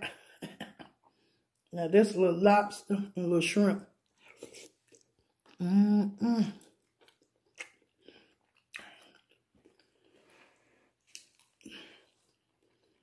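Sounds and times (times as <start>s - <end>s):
person chewing with wet smacks: 4.0s - 5.7s, 6.5s - 10.4s, 11.0s - 13.0s.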